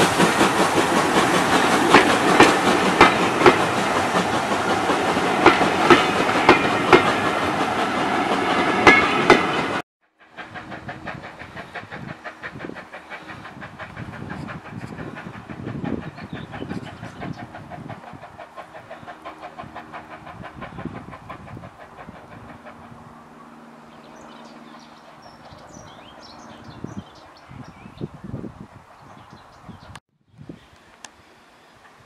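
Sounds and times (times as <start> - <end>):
train running away rhythmic beat: 0.0 - 27.7
train coaches rolling past: 0.0 - 29.7
birds chirping: 23.8 - 30.0.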